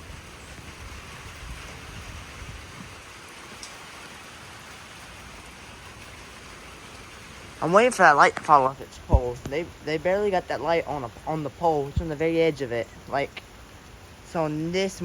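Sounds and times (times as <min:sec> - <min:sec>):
wind buffeting microphone: 0:00.0 - 0:03.7, 0:07.1 - 0:15.0
rain hiss: 0:00.0 - 0:15.0.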